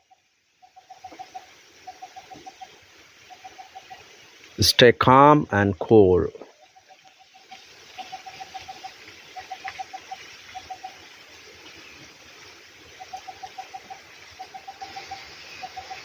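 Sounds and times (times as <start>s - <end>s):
steady background hiss: 0.0s - 16.0s
bird calling in quick runs: 6.6s - 11.1s.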